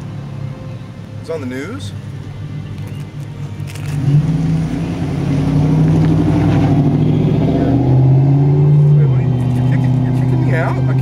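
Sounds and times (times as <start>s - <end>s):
car engine accelerating: 3.5s - 11.0s.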